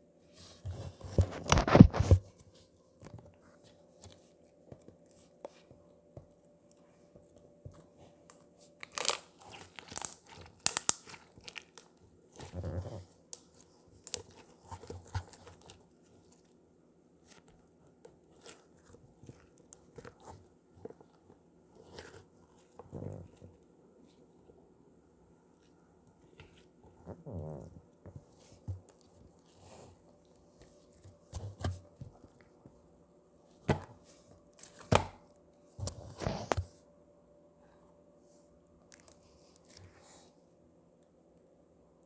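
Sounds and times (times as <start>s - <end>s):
slime crackling and popping: 8.8s - 12.5s.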